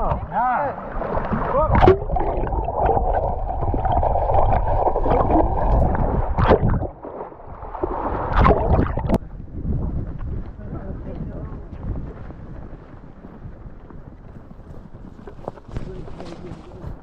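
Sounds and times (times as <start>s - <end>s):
water sloshing and splashing: 0.0s - 9.4s.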